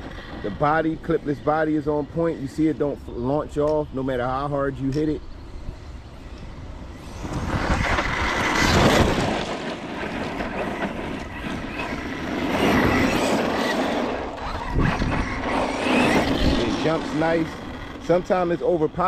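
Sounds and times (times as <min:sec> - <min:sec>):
toy truck tyre and drivetrain noise: 0:00.0 - 0:19.0
electric motor whining: 0:05.2 - 0:19.0.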